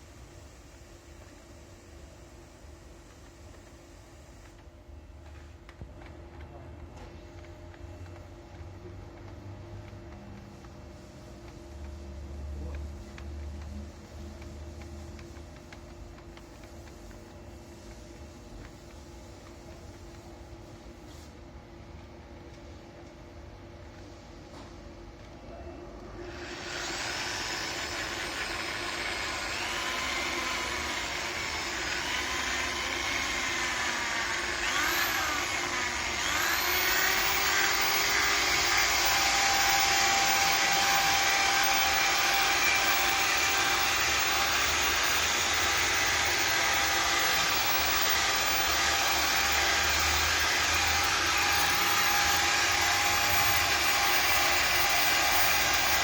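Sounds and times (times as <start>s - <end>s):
electric tool motor running: 26.2s - 56.0s.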